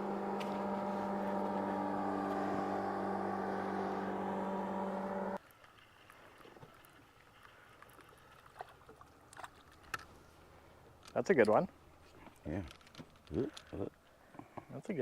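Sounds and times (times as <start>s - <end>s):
boat motor running: 0.0s - 5.4s.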